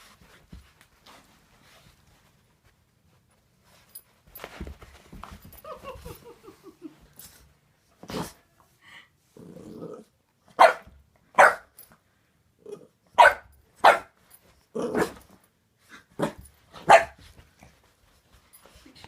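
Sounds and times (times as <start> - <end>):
puppy growling: 9.4 - 10.2
puppy barking: 10.6 - 11.7, 13.2 - 14.1, 16.8 - 17.2.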